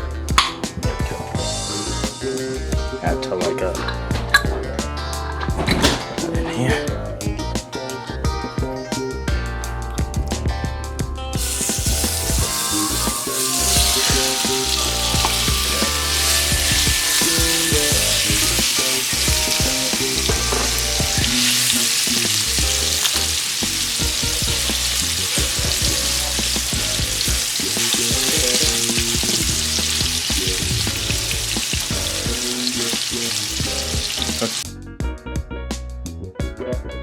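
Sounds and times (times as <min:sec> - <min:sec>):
chicken sizzling in a pan: 0:11.4 - 0:34.6.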